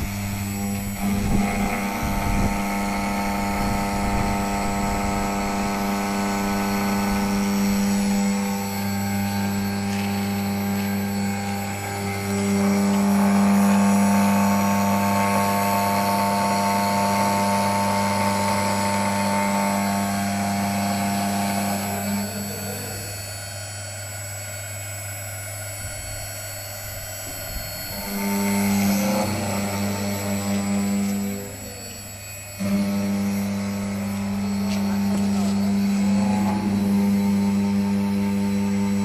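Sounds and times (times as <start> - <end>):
wood router machine hum: 0.0 - 39.0.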